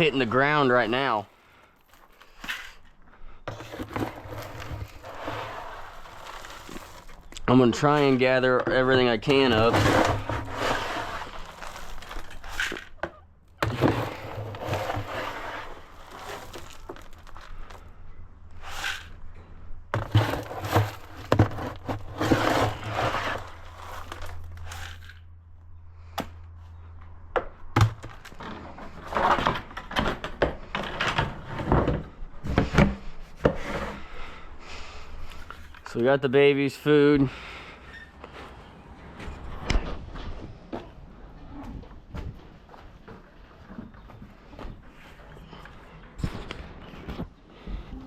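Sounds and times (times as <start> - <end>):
rustling and scraping feed: 0.0 - 27.0, 27.8 - 36.0.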